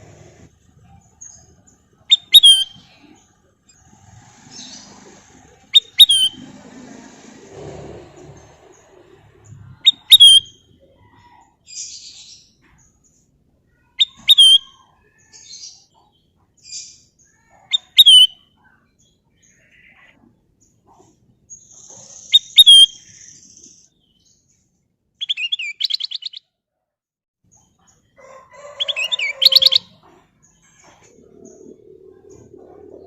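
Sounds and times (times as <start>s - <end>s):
bulbul whistled calls: 2.1s - 2.9s, 5.7s - 6.4s, 9.8s - 10.6s, 14.0s - 14.8s, 17.7s - 18.4s, 22.0s - 23.8s
soft bird chirps: 8.6s - 26.5s.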